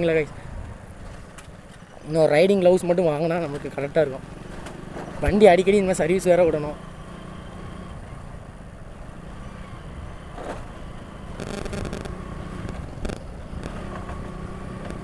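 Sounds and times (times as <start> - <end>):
motorcycle engine running: 6.8 - 15.0.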